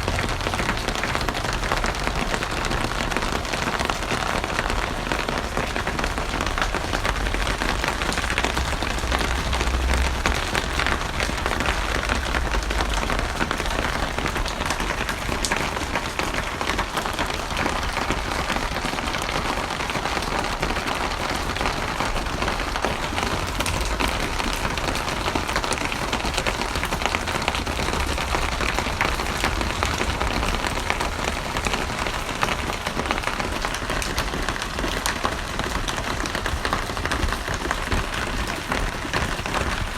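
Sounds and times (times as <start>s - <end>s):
heavy rain patter: 0.0s - 39.9s
low rumble: 7.1s - 13.6s.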